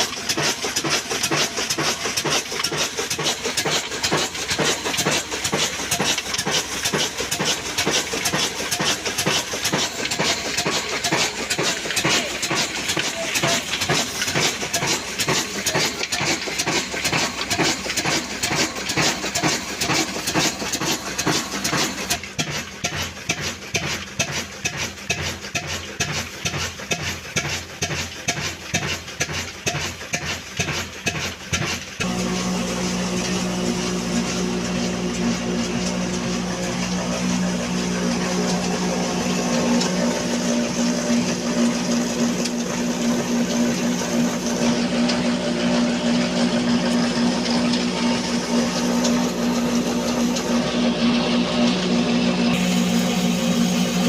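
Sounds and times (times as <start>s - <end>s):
diesel engine chugging: 0.0s - 54.0s
hiss: 52.6s - 54.0s
steady hum: 52.6s - 54.0s.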